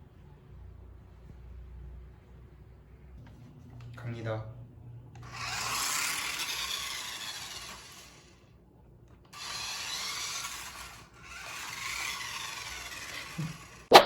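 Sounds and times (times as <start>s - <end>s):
toy car motor whirring: 5.2s - 8.5s, 9.3s - 13.9s.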